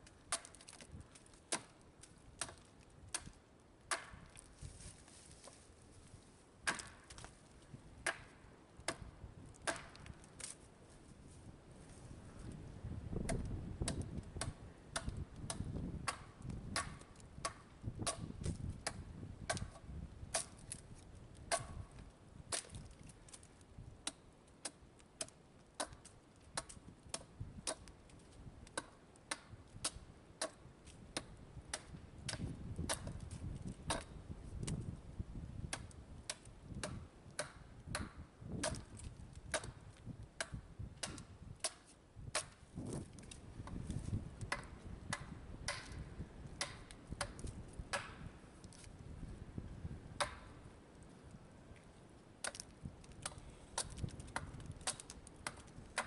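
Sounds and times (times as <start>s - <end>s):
axe chopping log: 0.3s - 0.9s, 1.5s - 1.8s, 2.4s - 4.3s, 6.6s - 7.3s, 8.0s - 8.3s, 8.9s - 10.5s, 13.2s - 20.7s, 21.5s - 21.9s, 22.5s - 22.9s, 24.0s - 27.9s, 28.8s - 30.6s, 31.2s - 33.2s, 33.9s - 34.8s, 35.7s - 39.8s, 40.4s - 43.0s, 44.4s - 46.0s, 46.6s - 48.3s, 50.2s - 50.5s.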